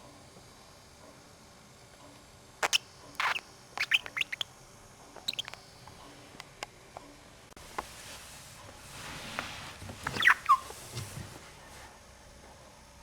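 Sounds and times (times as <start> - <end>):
budgerigar chirping: 2.6 - 4.5, 5.3 - 5.6, 10.2 - 10.7.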